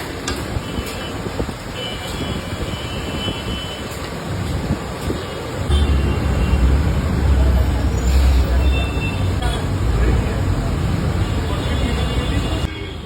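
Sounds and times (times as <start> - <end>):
street traffic engines: 0.0 - 13.0
heavy vehicle engine rumble: 5.9 - 11.3.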